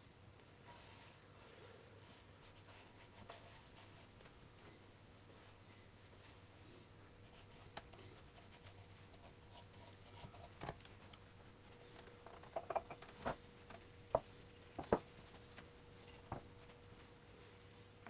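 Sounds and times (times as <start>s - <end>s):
faint hum: 0.0s - 18.0s
light clicks and knocks: 9.9s - 16.8s.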